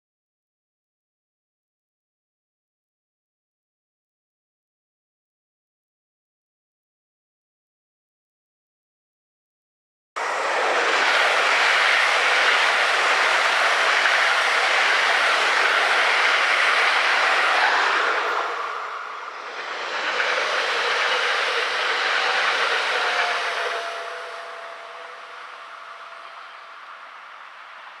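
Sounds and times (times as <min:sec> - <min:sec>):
train wheels rolling on rail: 0:10.2 - 0:28.0
faint thin squeal: 0:10.3 - 0:28.0.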